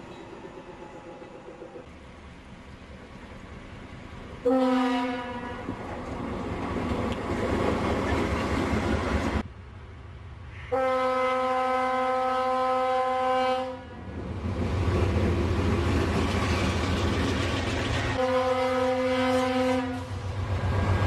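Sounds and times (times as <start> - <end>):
locomotive horn blasts: 4.4 - 5.7, 10.7 - 14.0, 18.2 - 20.2
train ploughing through snow: 14.1 - 21.0.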